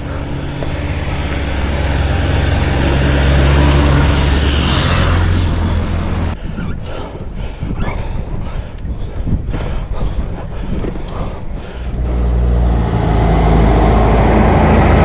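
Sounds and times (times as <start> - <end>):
vehicle engine running: 0.0 - 6.4, 11.6 - 15.0
road and wind noise: 0.0 - 15.0.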